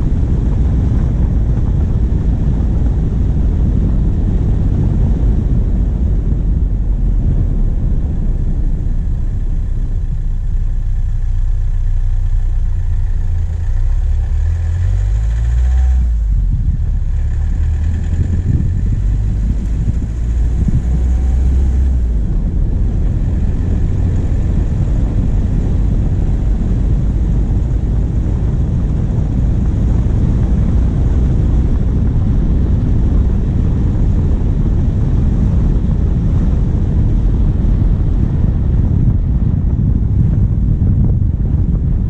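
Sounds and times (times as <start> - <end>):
diesel engine rumbling: 0.0 - 42.0
wind buffeting microphone: 0.0 - 42.0.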